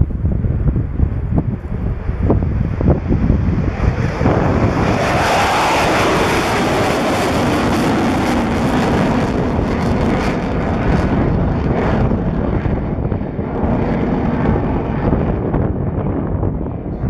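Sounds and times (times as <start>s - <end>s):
jet engines rumbling overhead: 0.0s - 17.0s.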